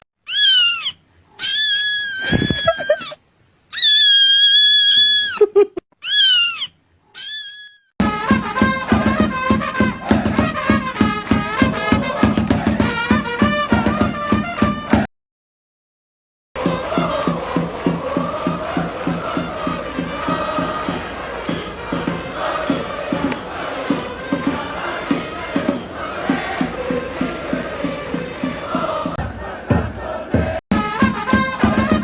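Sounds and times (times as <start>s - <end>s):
cat meowing: 0.3s - 3.1s, 3.7s - 5.4s, 6.0s - 7.8s
upbeat music with steady beat: 8.0s - 15.0s, 16.6s - 32.0s.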